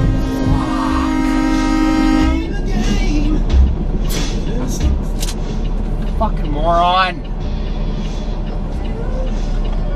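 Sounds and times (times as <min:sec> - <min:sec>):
air horn blowing: 0:00.0 - 0:02.5
truck engine and road noise: 0:00.0 - 0:09.9.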